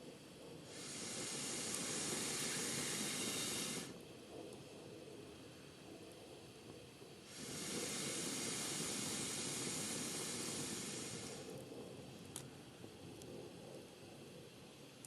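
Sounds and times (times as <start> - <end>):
wood fire hissing: 0.0 - 14.8.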